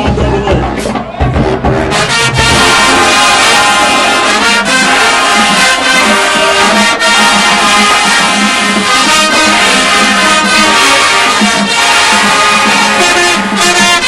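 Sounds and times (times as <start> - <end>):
brass section playing chords: 0.0 - 14.0.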